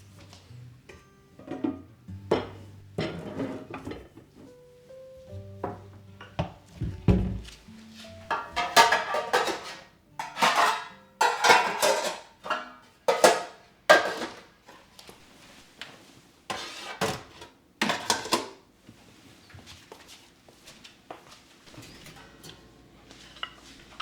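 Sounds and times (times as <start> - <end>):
dishes and cutlery clattering: 1.4 - 4.6, 5.6 - 14.9, 16.5 - 18.6, 21.7 - 24.0.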